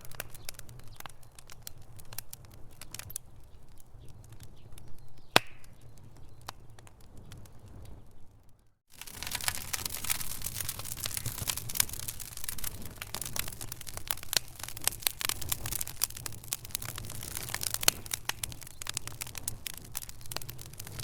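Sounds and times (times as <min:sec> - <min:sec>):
wood fire crackling and popping: 0:00.0 - 0:21.0
low steady fire rumble: 0:05.9 - 0:21.0.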